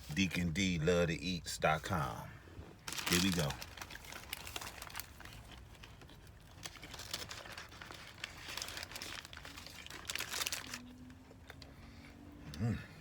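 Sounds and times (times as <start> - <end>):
wrapper crinkling and rustling: 2.8 - 11.2.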